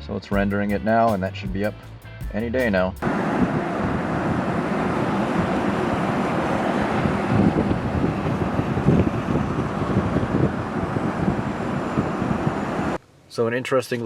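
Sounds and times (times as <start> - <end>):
vehicle road and engine rumble: 3.0 - 13.0
wind buffeting microphone: 3.0 - 13.0.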